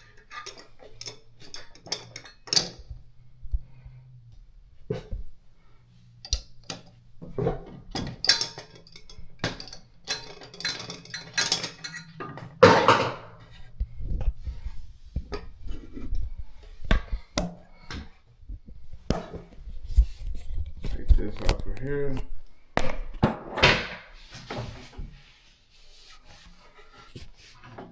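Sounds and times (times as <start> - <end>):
sink drain parts clinking: 0.0 - 2.9, 6.2 - 13.4.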